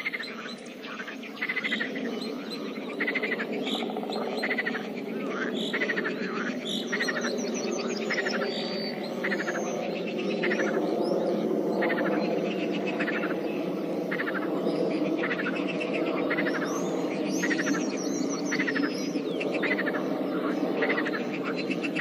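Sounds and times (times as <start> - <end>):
rattling frog croaks: 0.0 - 1.9, 3.0 - 7.3
frog chorus: 0.0 - 22.0.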